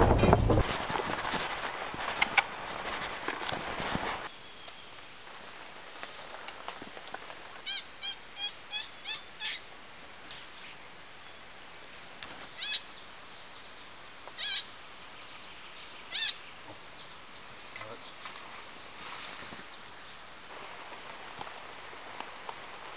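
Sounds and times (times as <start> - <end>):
bird calling: 7.6 - 9.7, 12.4 - 18.9.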